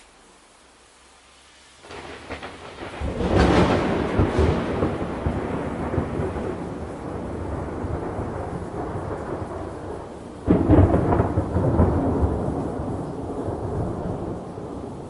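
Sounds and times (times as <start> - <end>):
rain: 0.0 - 15.0
thunder rumbling: 1.8 - 15.0.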